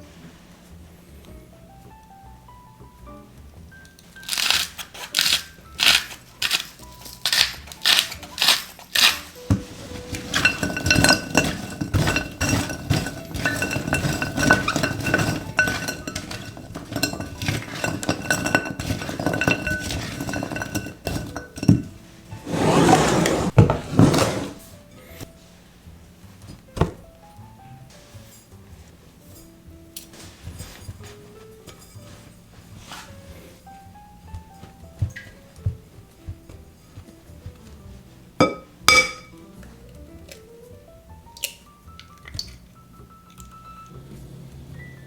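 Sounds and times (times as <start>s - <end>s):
soft background music: 0.0s - 45.0s
utensil clinking in glass bowl: 4.2s - 22.0s, 38.4s - 39.4s
scraping rush: 22.3s - 24.7s.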